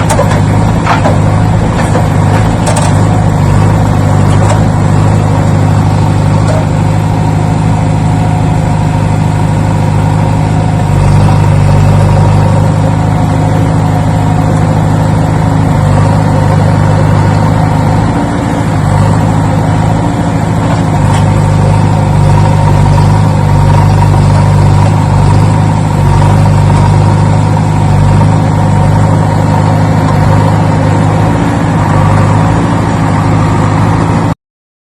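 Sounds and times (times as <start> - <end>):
engine running steadily: 0.0 - 34.4.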